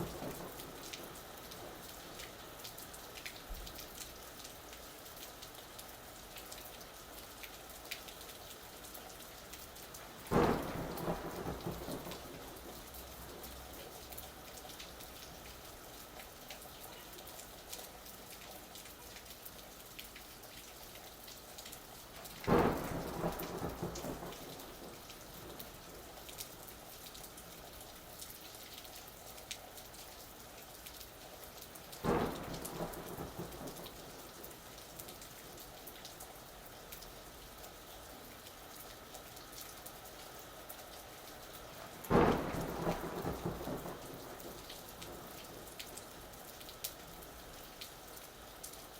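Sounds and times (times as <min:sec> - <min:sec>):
thunder claps: 0:00.0 - 0:01.8, 0:10.3 - 0:13.6, 0:22.4 - 0:26.0, 0:32.0 - 0:34.5, 0:42.1 - 0:45.7
steady rain: 0:00.0 - 0:48.9.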